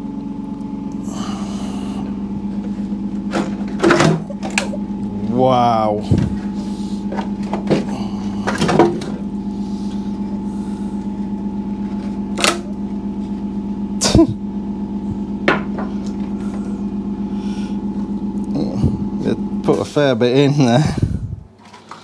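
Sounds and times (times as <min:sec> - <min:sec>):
steady mechanical hum: 0:00.0 - 0:22.0
knocks of things being handled: 0:15.4 - 0:16.6.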